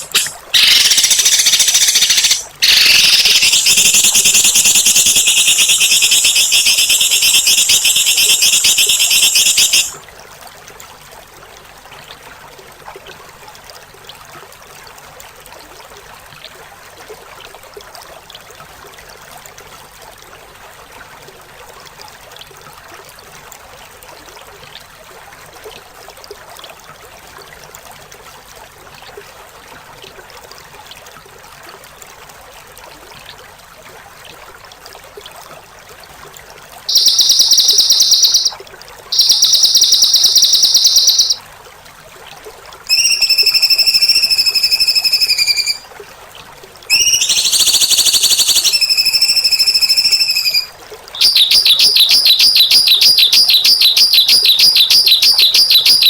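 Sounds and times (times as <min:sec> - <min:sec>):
running water hiss: 0:00.0 - 0:10.0, 0:36.9 - 0:41.4, 0:42.9 - 0:45.8, 0:46.9 - 0:56.0
songbird song: 0:00.0 - 0:10.0, 0:36.9 - 0:41.4, 0:42.9 - 0:45.8, 0:46.9 - 0:56.0.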